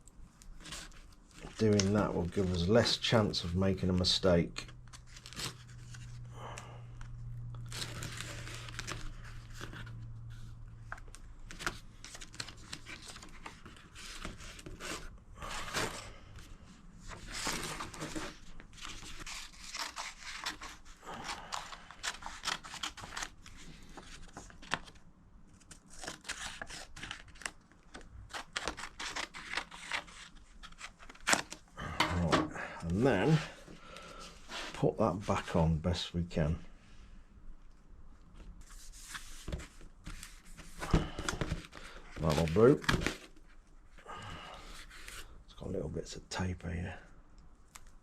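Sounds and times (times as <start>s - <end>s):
backing paper tearing and crinkling: 4.8s - 6.6s, 7.6s - 16.3s, 17.1s - 25.0s, 25.6s - 32.3s, 39.0s - 43.4s.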